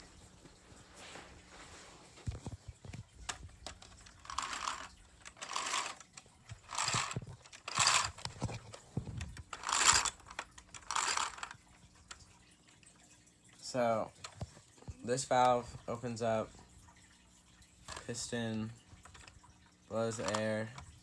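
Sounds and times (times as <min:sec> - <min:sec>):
plastic clicks and rattles: 0:02.3 - 0:12.3, 0:17.8 - 0:18.3, 0:19.0 - 0:21.0.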